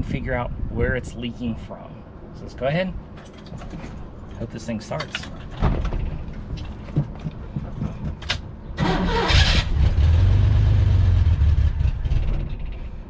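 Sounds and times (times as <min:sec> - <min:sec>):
car engine cranking and idling: 0:03.2 - 0:13.0.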